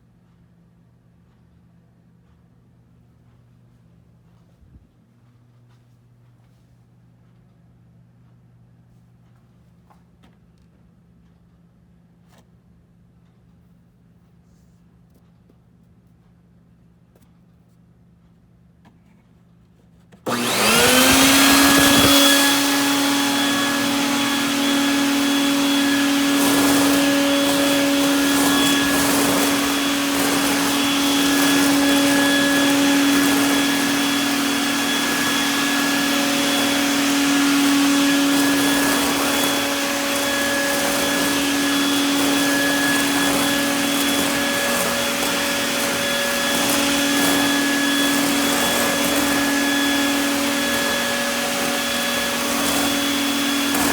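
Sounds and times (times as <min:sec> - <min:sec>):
shop vacuum motor whine: 0:20.2 - 0:53.9.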